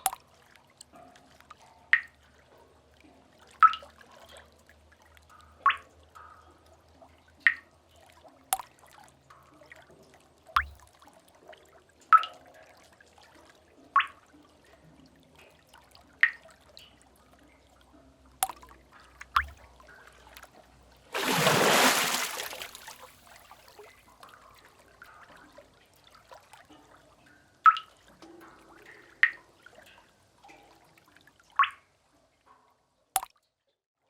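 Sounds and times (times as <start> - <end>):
water drips: 0.0 - 31.9, 33.2 - 33.4
wave splashing: 21.2 - 23.1.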